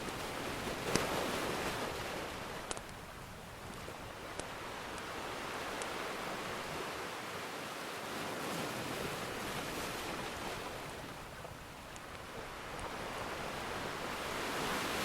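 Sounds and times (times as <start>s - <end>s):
ocean surf washing: 0.0s - 15.0s
faint wood fire crackle: 11.4s - 13.0s.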